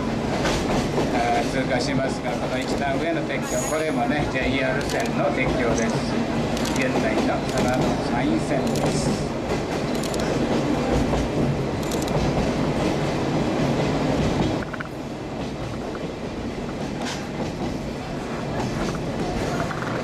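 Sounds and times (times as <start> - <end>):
train rumbling on track: 0.0 - 20.0
wheel clicks over rail joints: 2.5 - 3.0, 4.7 - 8.0, 8.6 - 10.4, 11.8 - 12.5.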